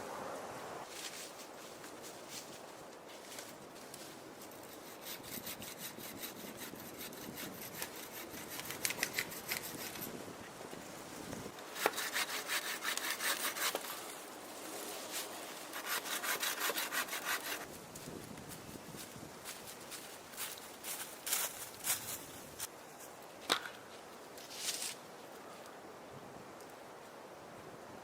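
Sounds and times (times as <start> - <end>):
hand saw cutting wood: 4.6 - 10.1, 11.6 - 14.1, 15.6 - 17.7.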